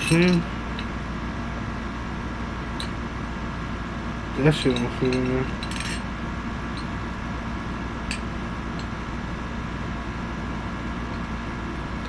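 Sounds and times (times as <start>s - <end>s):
room noise hum: 0.0s - 12.0s.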